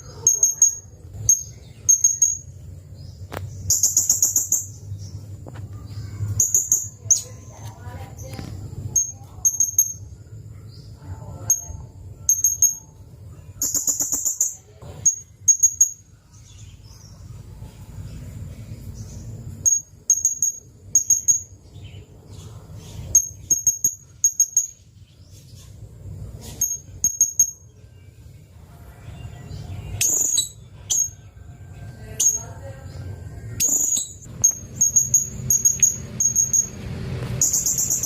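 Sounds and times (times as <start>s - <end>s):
parrot high chirps: 0.0s - 2.5s, 33.6s - 36.8s
buzzy bird trill: 0.0s - 17.5s, 18.1s - 28.2s, 29.0s - 38.0s.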